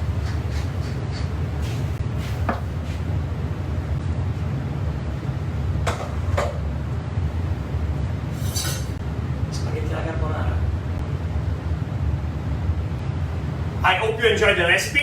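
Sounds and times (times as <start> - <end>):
low kitchen rumble: 0.0 - 15.0.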